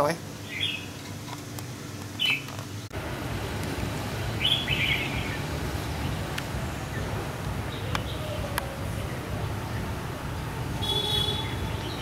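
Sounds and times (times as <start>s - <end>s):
low outdoor background rumble: 0.0s - 12.0s
small bird chirping: 0.4s - 1.0s, 2.2s - 2.5s.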